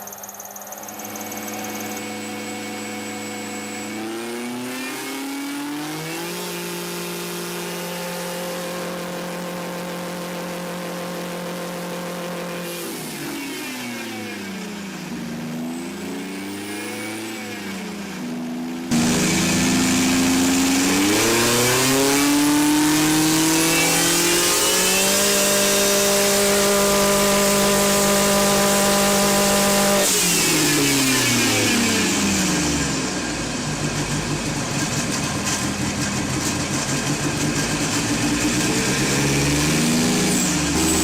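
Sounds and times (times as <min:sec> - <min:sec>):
car engine revving: 0:00.7 - 0:41.0.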